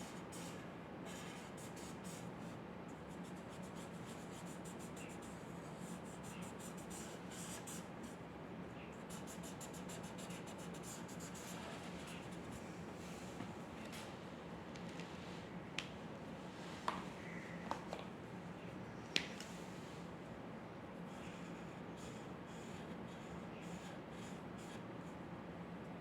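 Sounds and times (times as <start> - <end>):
steady low hum: 0.0 - 26.0
pen scratching on paper: 9.1 - 12.6.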